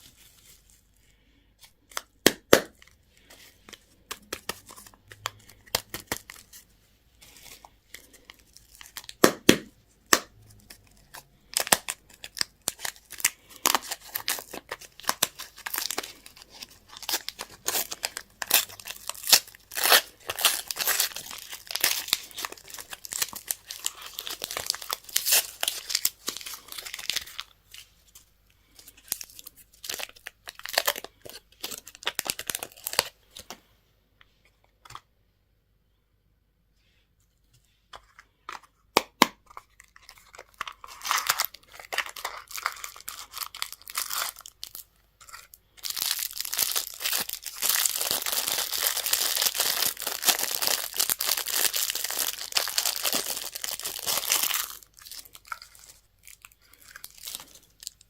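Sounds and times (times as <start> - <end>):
packaging torn and crinkled: 7.3 - 27.8, 28.6 - 33.5, 39.4 - 58.0.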